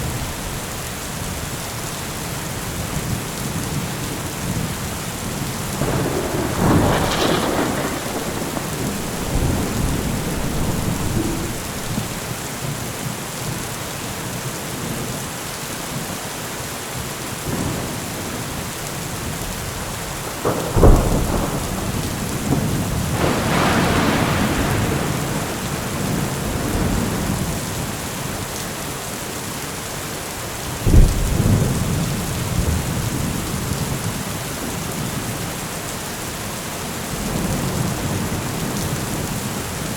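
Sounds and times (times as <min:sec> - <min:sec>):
steady rain falling: 0:00.0 - 0:39.9
rolling thunder rumbles: 0:04.4 - 0:13.1, 0:17.5 - 0:28.5, 0:30.6 - 0:35.4
sharp thunder claps: 0:05.6 - 0:12.8, 0:17.5 - 0:27.9, 0:30.9 - 0:33.4.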